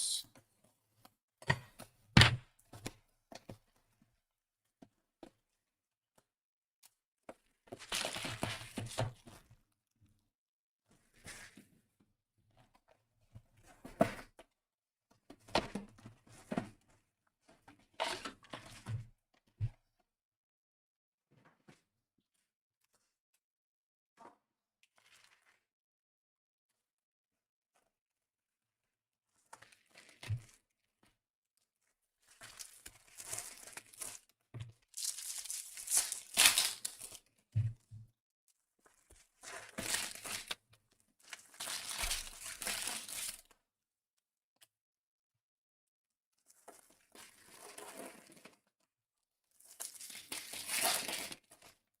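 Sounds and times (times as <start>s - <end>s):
card wrappers tearing and crinkling: 35.0s - 37.2s, 39.8s - 40.6s, 41.4s - 43.4s, 49.7s - 51.4s.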